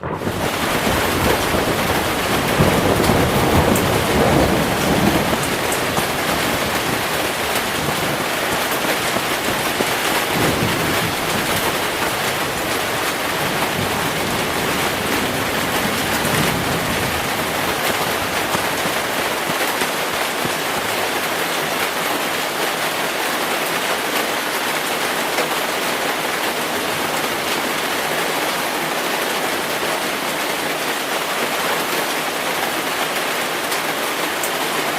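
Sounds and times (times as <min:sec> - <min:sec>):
thunder rumbling: 0:00.0 - 0:22.0
heavy rain: 0:00.0 - 0:34.9.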